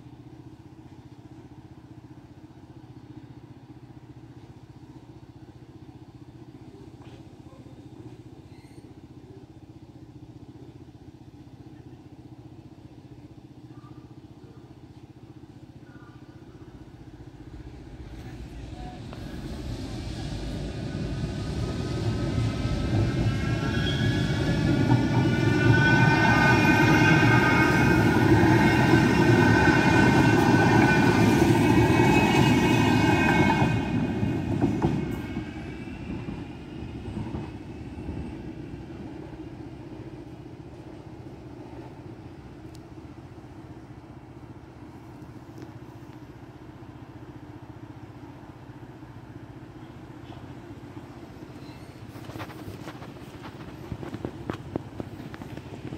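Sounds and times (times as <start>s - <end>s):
train rumbling past: 7.9s - 55.9s
high whine: 16.3s - 36.3s.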